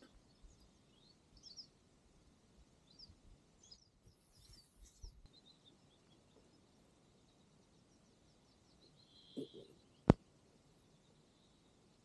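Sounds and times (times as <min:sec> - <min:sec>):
faint bird chirps: 0:00.0 - 0:01.9, 0:02.6 - 0:12.0.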